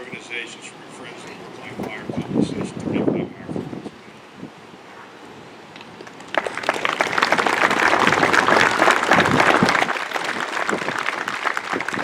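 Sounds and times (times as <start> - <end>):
crowd applauding: 6.0 - 12.0.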